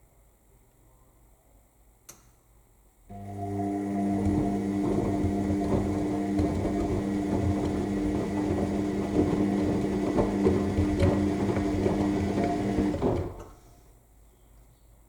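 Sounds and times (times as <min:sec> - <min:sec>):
washing machine motor hum: 0:03.1 - 0:13.6.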